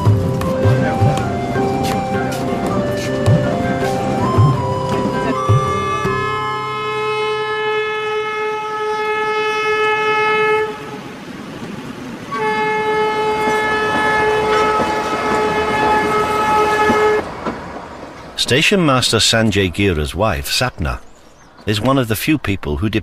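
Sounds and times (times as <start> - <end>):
moving train noise: 0.0 - 23.0
train horn blasts: 2.7 - 11.1, 12.3 - 17.3.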